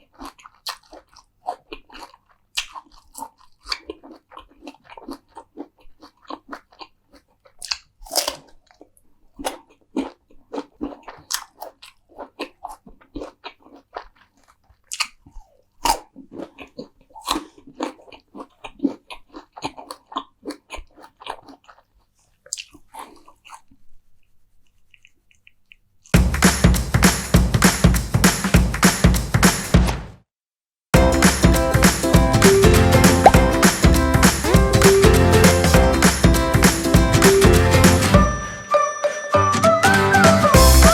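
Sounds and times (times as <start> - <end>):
crunchy chewing: 0.0 - 26.2.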